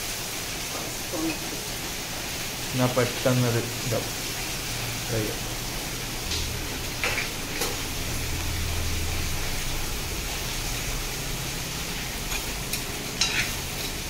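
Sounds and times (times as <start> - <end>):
onions sizzling in hot oil: 0.0 - 14.0
steel spoon clicking against pan: 12.3 - 14.0.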